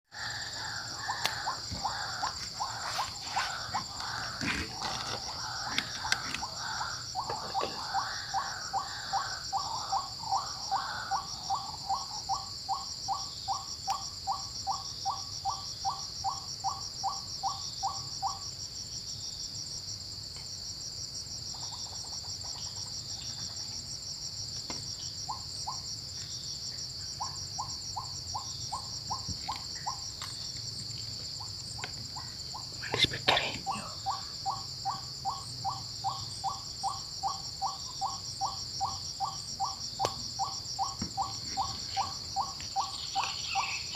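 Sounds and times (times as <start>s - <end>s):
high-pitched insect chorus: 0.0s - 43.9s.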